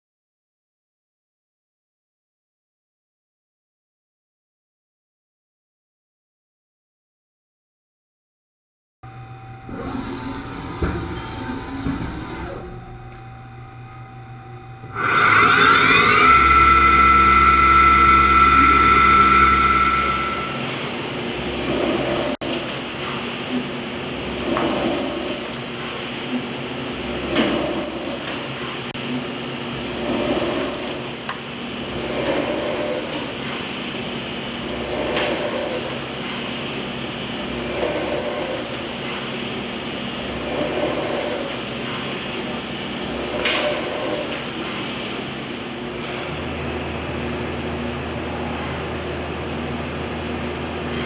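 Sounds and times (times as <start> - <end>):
machine humming: 9.1 - 22.4
cutter squealing in metal: 14.9 - 22.7.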